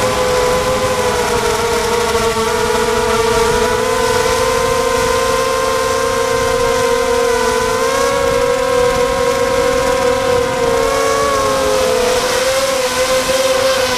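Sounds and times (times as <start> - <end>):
drone propellers whining: 0.0 - 13.9
wind rumbling on microphone: 0.0 - 13.9.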